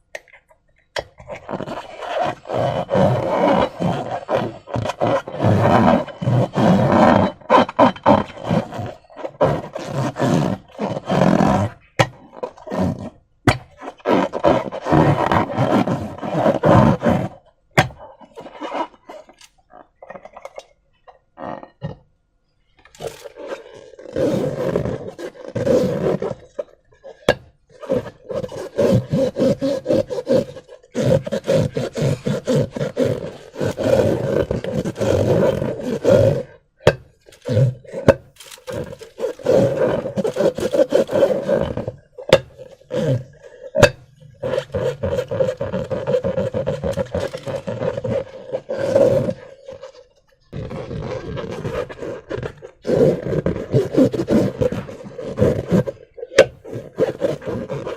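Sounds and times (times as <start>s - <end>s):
slime balloons squeaking and grating: 0.9s - 57.9s.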